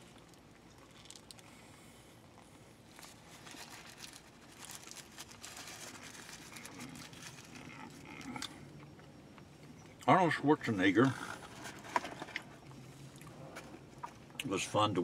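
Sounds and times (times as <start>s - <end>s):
chewing crunchy food: 0.0s - 10.1s, 11.0s - 14.5s
paper wrapper crinkling: 2.9s - 7.7s.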